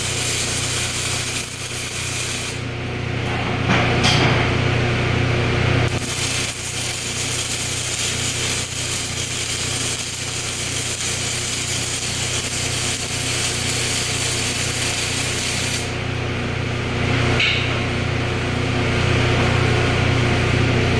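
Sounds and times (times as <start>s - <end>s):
welding arc crackling: 0.0s - 2.7s, 5.8s - 16.0s.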